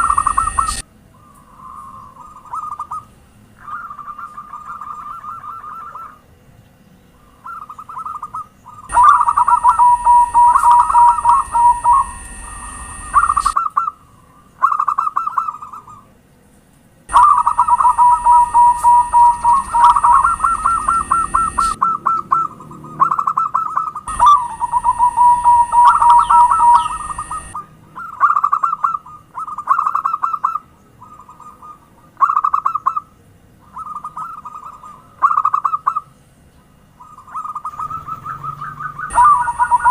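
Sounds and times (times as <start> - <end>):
doves cooing: 0.0 - 6.3, 7.2 - 16.2, 17.1 - 36.1, 37.0 - 39.9
high-pitched hiss: 8.9 - 13.6, 17.1 - 21.8, 24.1 - 27.6.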